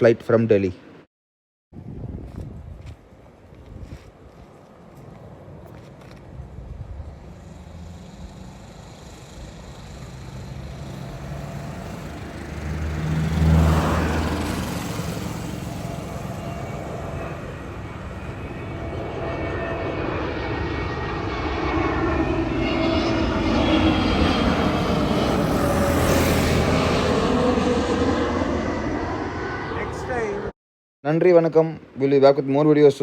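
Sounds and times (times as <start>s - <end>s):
jet airliner engine noise: 2.1s - 30.6s
jet engine whine: 4.2s - 30.6s.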